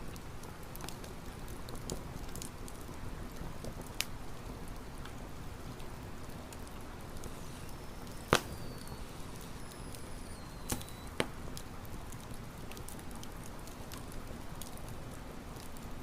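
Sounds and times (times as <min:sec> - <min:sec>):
campfire crackling: 0:00.0 - 0:16.0
faint high whistling tones: 0:07.0 - 0:11.2
sharp fire pops: 0:07.2 - 0:11.6.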